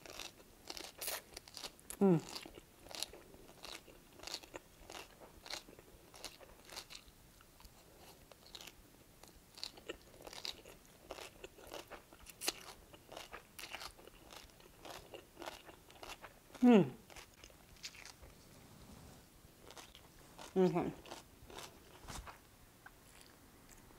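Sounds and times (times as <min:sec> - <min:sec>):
person chewing and slurping noodles: 0:09.5 - 0:18.2, 0:19.6 - 0:22.4.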